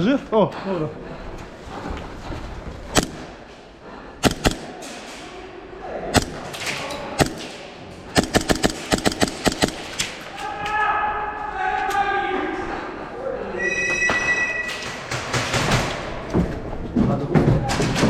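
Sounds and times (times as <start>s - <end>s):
airsoft guns firing: 2.9s - 3.4s, 4.2s - 5.2s, 6.1s - 10.2s, 15.0s - 16.2s.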